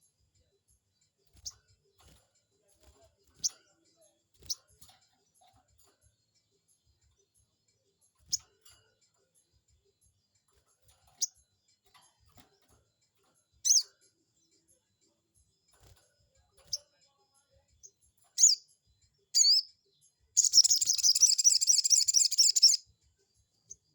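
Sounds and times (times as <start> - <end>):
bird chirping and trilling: 4.4 - 4.7, 13.6 - 14.0, 17.8 - 18.7, 19.3 - 19.8, 20.4 - 22.8.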